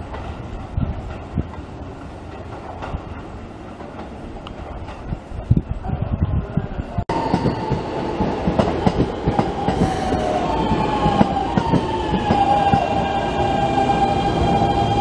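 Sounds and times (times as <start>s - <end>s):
train rumble with wheel clicks: 0.0s - 15.0s
electric train whine: 7.1s - 15.0s.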